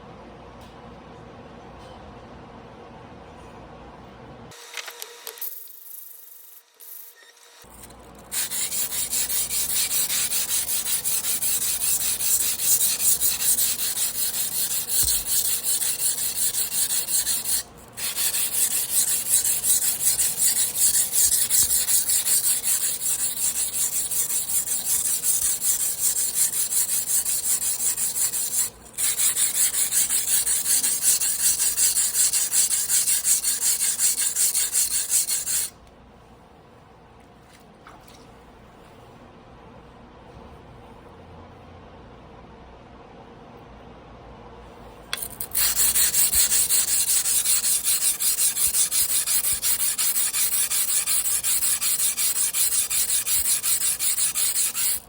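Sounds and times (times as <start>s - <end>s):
knife blade scraping on abrasive: 7.6s - 35.7s, 45.2s - 55.0s.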